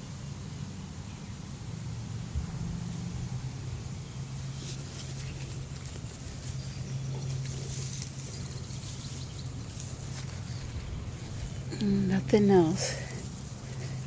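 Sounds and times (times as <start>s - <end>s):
steady low hum: 0.0s - 14.0s
plant rustling: 2.8s - 14.0s
hands scraping through soil: 4.3s - 14.0s.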